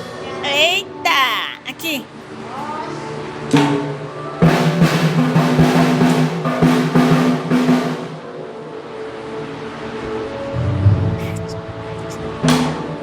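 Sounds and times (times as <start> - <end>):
held musical tone: 10.4 - 12.4
drum kit strokes: 10.5 - 12.8.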